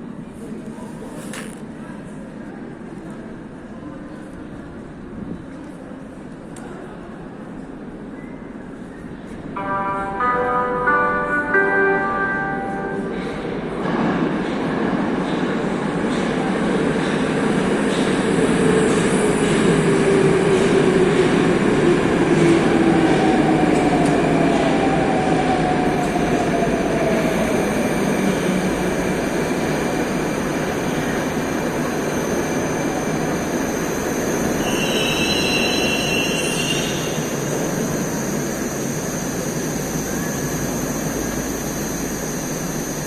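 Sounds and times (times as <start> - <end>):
metro train rumbling and braking: 0.0 - 43.0
high-pitched brake squeal: 34.3 - 37.5.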